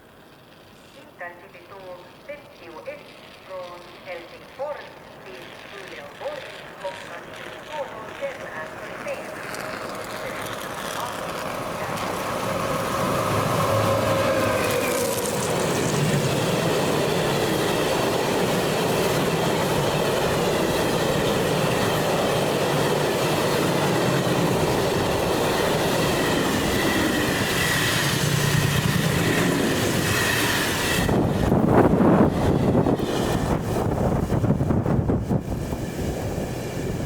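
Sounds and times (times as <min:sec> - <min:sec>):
train rumbling on rails: 0:00.0 - 0:37.0
wind buffeting microphone: 0:07.4 - 0:37.0.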